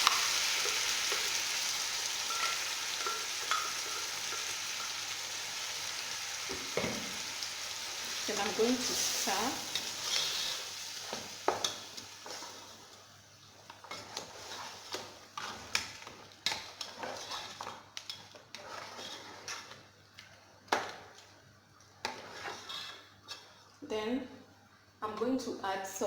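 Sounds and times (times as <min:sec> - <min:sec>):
spoon stirring in a pot: 0:00.4 - 0:05.2, 0:06.5 - 0:12.9, 0:13.6 - 0:21.3, 0:22.0 - 0:23.6
spoon clinking against pot: 0:02.3 - 0:04.5.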